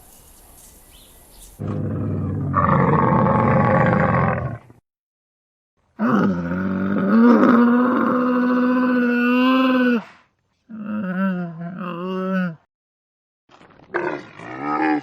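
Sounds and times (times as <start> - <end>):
animal roar-like call: 1.6 - 4.7, 6.0 - 10.1, 13.9 - 15.0.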